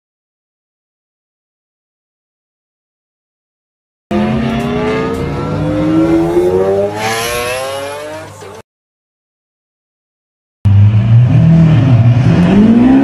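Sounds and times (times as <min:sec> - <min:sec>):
sports car accelerating hard: 0:04.1 - 0:08.6, 0:10.7 - 0:13.0.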